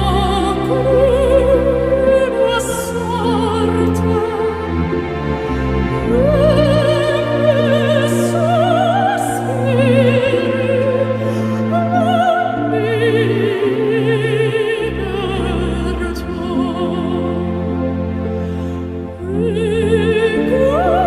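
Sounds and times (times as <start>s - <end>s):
high voice singing opera: 0.0s - 4.7s, 6.0s - 17.6s, 19.2s - 21.0s
low orchestral accompaniment: 0.0s - 21.0s.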